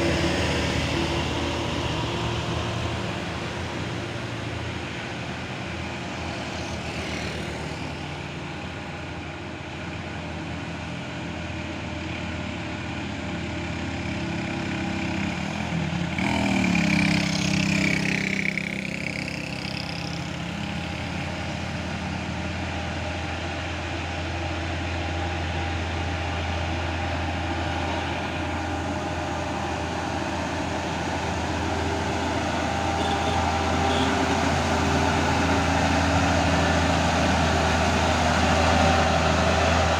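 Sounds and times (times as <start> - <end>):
truck engines under load: 0.0 - 39.9
vehicle passing close: 25.3 - 39.9.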